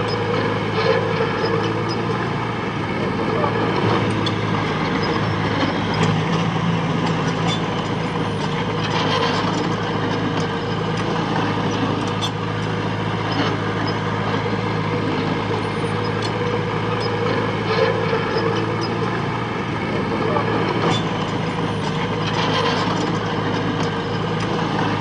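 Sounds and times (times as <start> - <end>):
heavy diesel engine running: 0.0 - 25.0.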